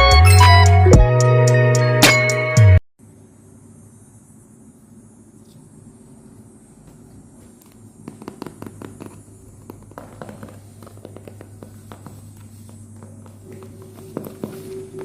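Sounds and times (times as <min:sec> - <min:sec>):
steady low hum: 0:03.0 - 0:15.0
hands tapping and clicking parcel: 0:06.9 - 0:15.0.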